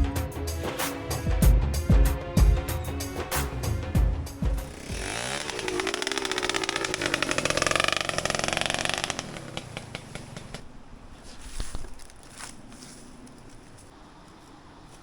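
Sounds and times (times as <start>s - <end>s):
motorcycle engine under throttle: 4.4s - 10.7s.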